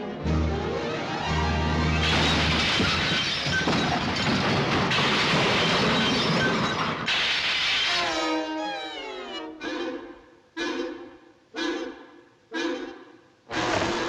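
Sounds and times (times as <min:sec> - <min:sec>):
orchestral music: 0:00.0 - 0:02.2
cartoon crash smashing and clattering: 0:02.0 - 0:08.2.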